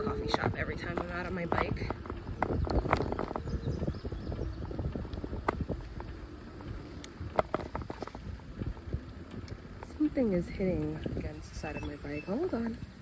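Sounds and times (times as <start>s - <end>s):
bicycle tyre rumble: 0.0s - 13.0s.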